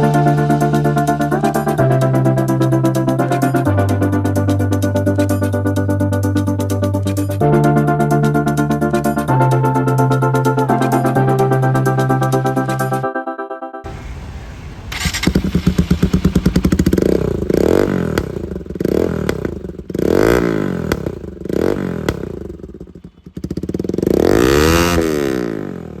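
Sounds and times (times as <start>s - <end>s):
motorcycle engine revving: 13.9s - 26.0s.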